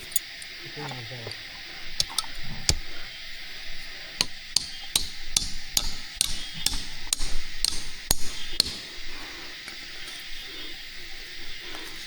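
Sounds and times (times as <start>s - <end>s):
hammering knocks: 4.2s - 9.0s.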